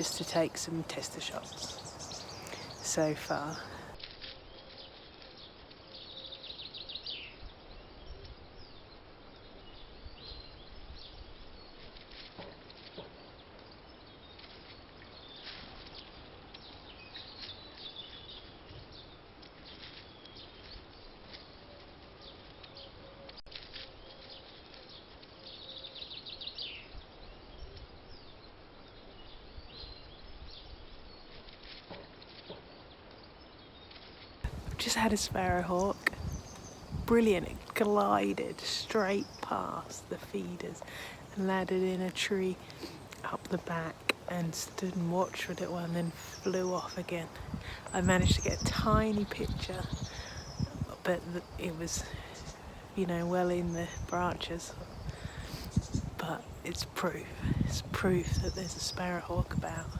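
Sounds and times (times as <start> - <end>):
garden birds singing: 0.0 - 59.9
low outdoor rumble: 34.5 - 59.9.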